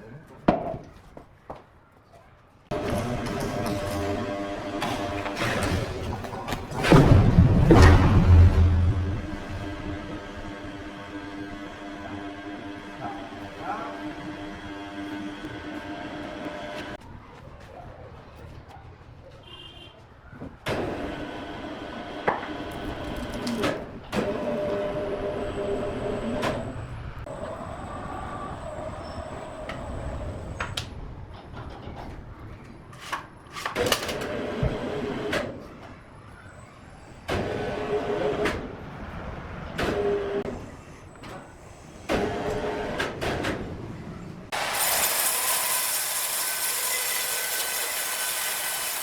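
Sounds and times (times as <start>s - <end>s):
sawmill machinery whining: 2.7s - 17.0s, 20.8s - 30.8s, 44.5s - 49.0s.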